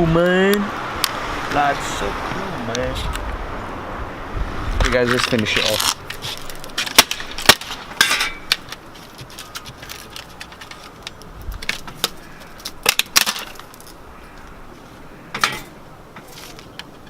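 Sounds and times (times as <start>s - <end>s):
keyboard parts being smashed: 5.2s - 14.0s.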